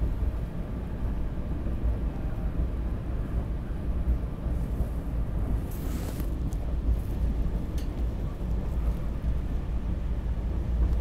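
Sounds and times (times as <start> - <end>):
train rumbling from inside: 0.0 - 11.0.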